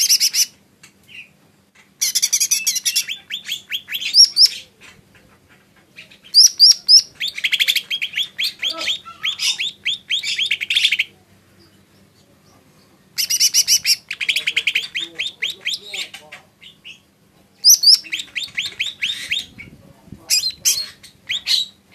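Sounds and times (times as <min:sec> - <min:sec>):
bird singing high chirps: 0:02.0 - 0:04.7, 0:06.0 - 0:12.6, 0:13.2 - 0:21.8.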